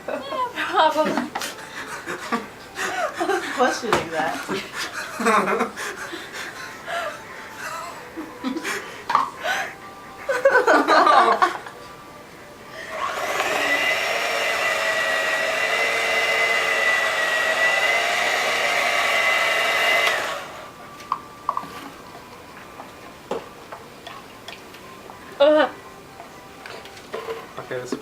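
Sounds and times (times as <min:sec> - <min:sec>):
electric mixer running: 0:12.8 - 0:20.8.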